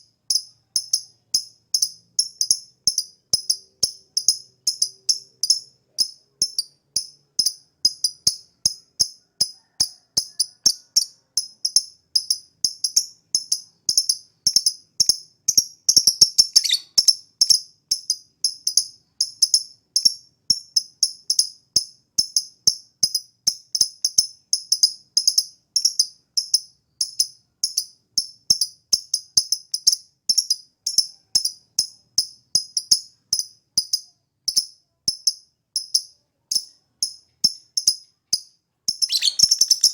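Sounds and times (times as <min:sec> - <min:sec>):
bird chirping song: 0:10.7 - 0:18.0, 0:35.8 - 0:39.9.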